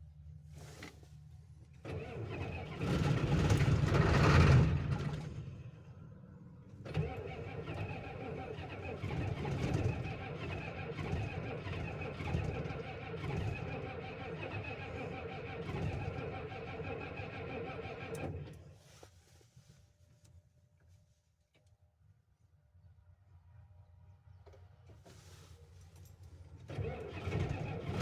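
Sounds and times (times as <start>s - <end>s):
diesel engine running: 26.7s - 28.0s.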